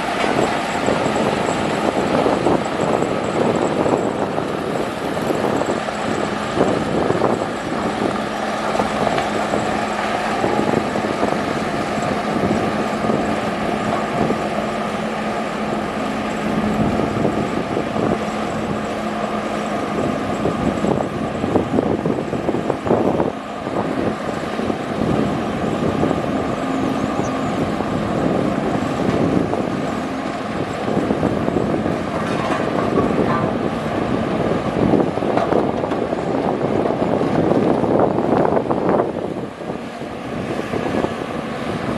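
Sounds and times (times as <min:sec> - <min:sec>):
diesel engine drone: 0:00.0 - 0:41.9
machinery clanks and knocks: 0:25.8 - 0:34.0, 0:35.3 - 0:36.6.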